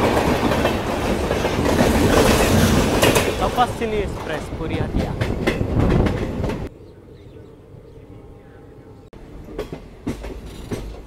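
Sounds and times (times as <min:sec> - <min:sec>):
wheels clacking over rail joints: 0:00.0 - 0:06.7, 0:09.2 - 0:11.0
train wheel and track noise: 0:00.0 - 0:11.0.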